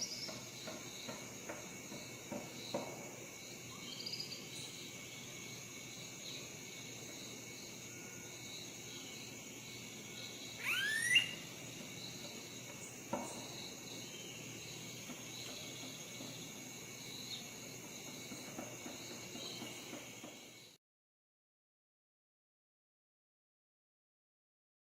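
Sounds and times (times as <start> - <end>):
insects chirping chorus: 0.0 - 20.8
call rising steeply in pitch: 10.6 - 11.4.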